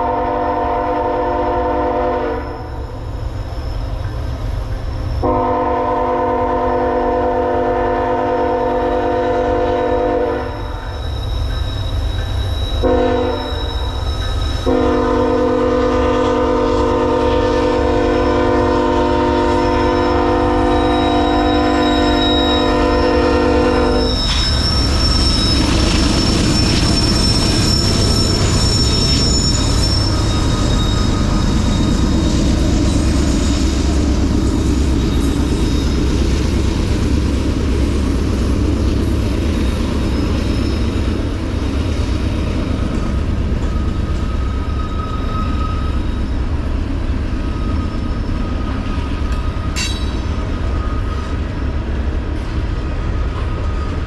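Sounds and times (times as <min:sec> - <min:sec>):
locomotive horn blast: 0:00.0 - 0:02.8, 0:05.2 - 0:10.6, 0:12.8 - 0:13.6, 0:14.7 - 0:24.2
train rumbling past: 0:00.0 - 0:54.0
wheel squeal: 0:10.4 - 0:15.4, 0:19.7 - 0:51.8, 0:52.7 - 0:54.0.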